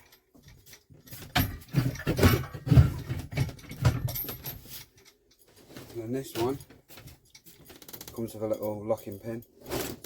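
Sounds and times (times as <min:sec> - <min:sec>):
metal jack clanking and rattling: 0:00.0 - 0:10.0.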